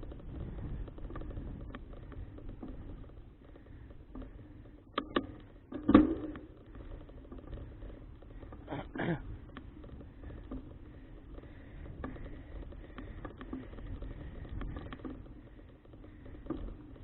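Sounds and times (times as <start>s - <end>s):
bicycle road rumble: 0.0s - 17.0s
wind: 0.0s - 17.0s
rattling clicks: 0.1s - 17.0s.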